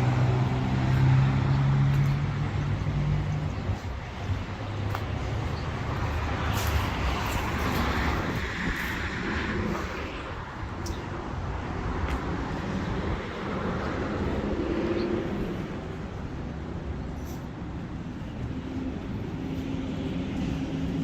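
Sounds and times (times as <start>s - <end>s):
vehicle passing: 0.0s - 10.7s
road traffic passing: 0.0s - 21.0s.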